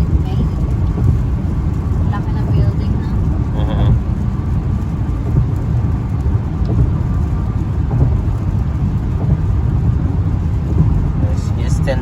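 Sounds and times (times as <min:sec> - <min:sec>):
car road and wind noise: 0:00.0 - 0:12.0.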